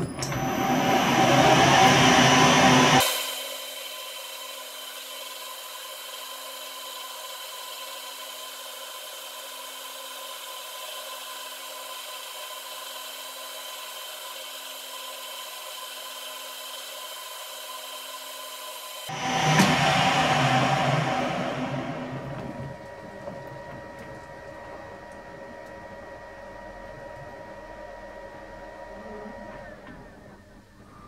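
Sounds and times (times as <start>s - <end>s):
metal lathe running: 0.0s - 3.0s, 19.1s - 30.2s.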